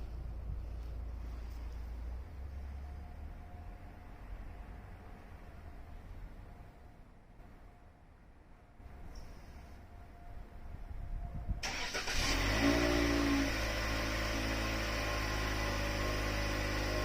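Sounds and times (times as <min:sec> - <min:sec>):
car engine starting and idling: 0:11.6 - 0:17.0.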